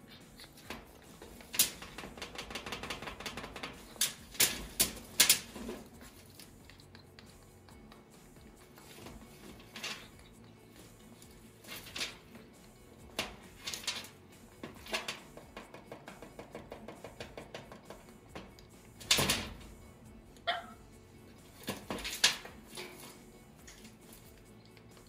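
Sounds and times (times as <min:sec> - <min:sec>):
small ticks: 0:06.2 - 0:08.9, 0:23.6 - 0:25.0
bird rustling through paper: 0:08.8 - 0:10.3, 0:11.6 - 0:12.4, 0:13.2 - 0:14.2.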